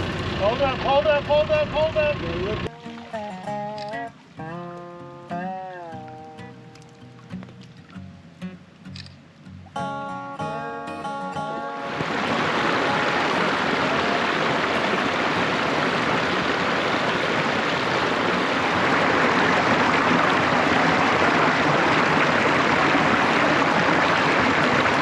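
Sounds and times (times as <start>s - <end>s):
rushing water: 2.7s - 8.8s, 11.4s - 25.0s.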